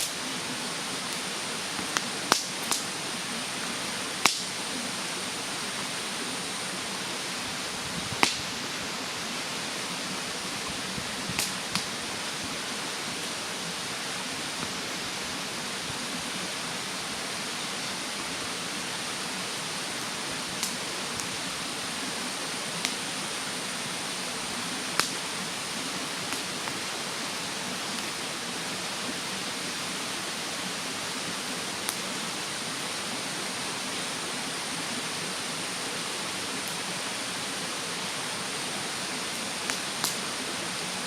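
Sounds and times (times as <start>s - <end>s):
mountain stream rushing: 0.0s - 41.0s
wood fire crackling pops: 1.8s - 2.9s, 4.2s - 4.6s, 8.1s - 8.5s, 11.2s - 12.0s, 20.6s - 21.3s, 22.8s - 23.0s, 25.0s - 25.3s, 39.7s - 40.2s.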